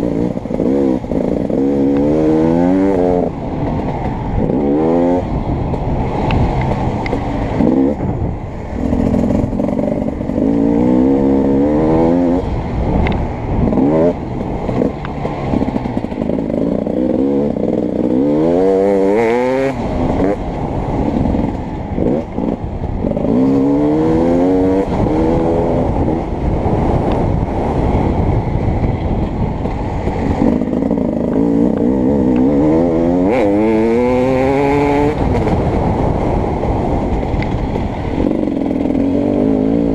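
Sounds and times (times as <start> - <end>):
dirt bike engine revving: 0.0 - 5.3, 8.7 - 12.5, 13.6 - 26.2, 29.7 - 35.6.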